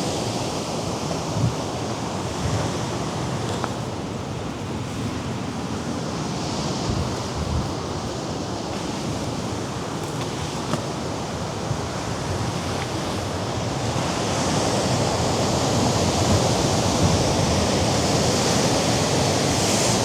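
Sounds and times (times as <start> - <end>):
surf washing against rocks: 0.0 - 20.0
wind gusting over microphone: 0.9 - 3.5, 4.3 - 10.5.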